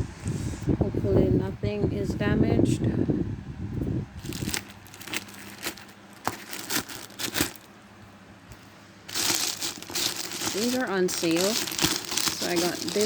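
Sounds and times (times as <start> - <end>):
packaging crinkling and rustling: 4.2 - 7.8, 8.5 - 13.0.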